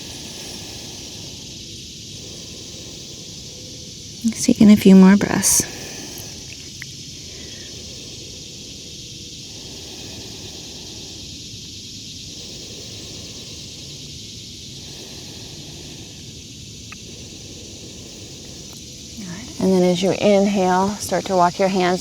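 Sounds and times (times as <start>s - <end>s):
cicadas buzzing: 0.0s - 22.0s
low background rumble: 12.3s - 22.0s.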